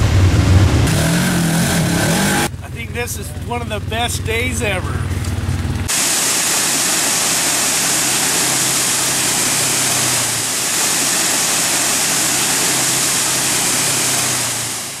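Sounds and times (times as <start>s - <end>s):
low engine hum: 0.0s - 15.0s
waterfall roaring: 5.9s - 15.0s.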